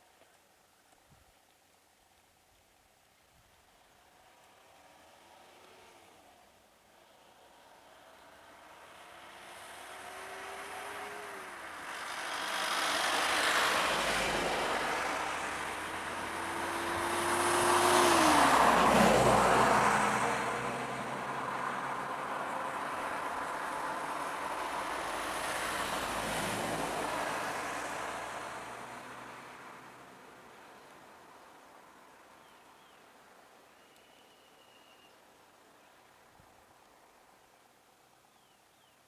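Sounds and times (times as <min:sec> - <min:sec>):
road vehicles passing: 0:03.8 - 0:33.7
steady engine hum: 0:07.0 - 0:30.3.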